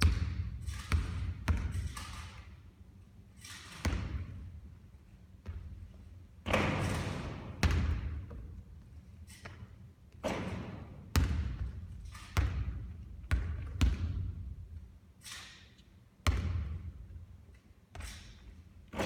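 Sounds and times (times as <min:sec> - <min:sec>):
basketball bouncing on hard court: 0:00.0 - 0:02.4, 0:03.8 - 0:04.6, 0:05.4 - 0:14.6, 0:16.2 - 0:17.2.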